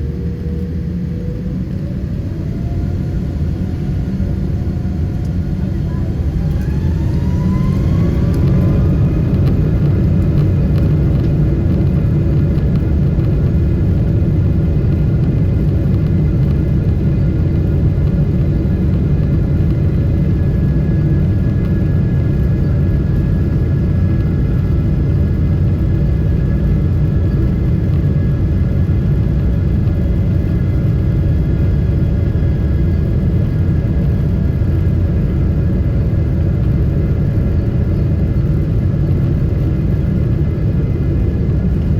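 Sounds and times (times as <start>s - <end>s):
airliner cabin engine rumble: 0.0s - 41.9s
faint engine whine: 0.0s - 41.9s.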